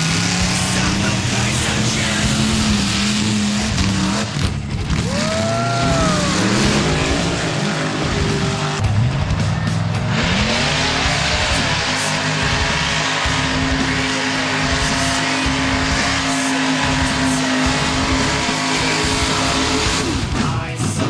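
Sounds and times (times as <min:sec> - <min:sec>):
truck engine revving hard: 0:00.0 - 0:21.0
rising and falling whine: 0:05.0 - 0:20.2.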